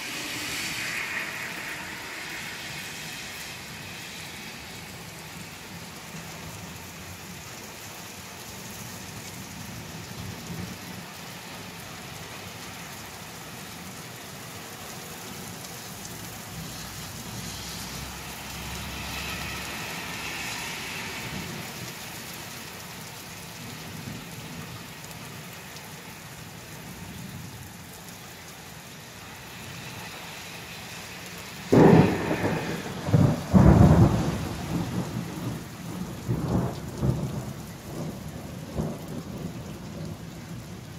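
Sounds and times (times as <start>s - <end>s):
steady rain: 0.0s - 40.9s
thunder clap rumbling: 31.7s - 40.6s.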